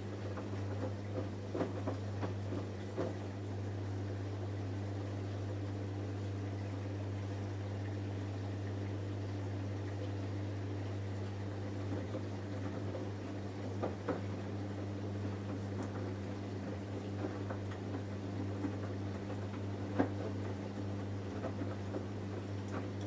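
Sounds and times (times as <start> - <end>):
washing machine humming: 0.0 - 23.0.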